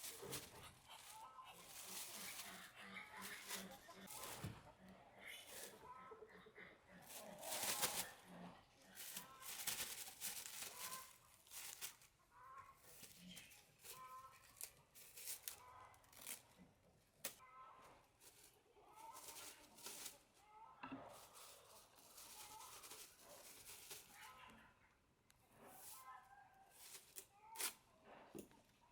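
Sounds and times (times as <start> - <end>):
clicks and rustles: 0.0 - 4.6, 7.1 - 12.1
chickens clucking: 0.0 - 16.7.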